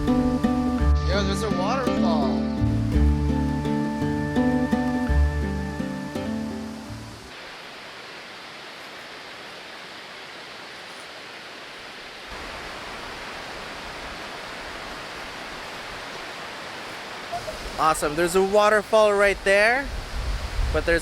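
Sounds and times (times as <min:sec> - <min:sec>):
background music: 0:00.0 - 0:07.3
waterfall rushing: 0:00.0 - 0:21.0.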